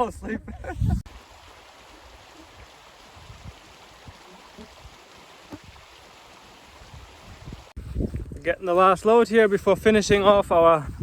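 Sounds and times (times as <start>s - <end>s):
running water rushing: 1.0s - 7.8s.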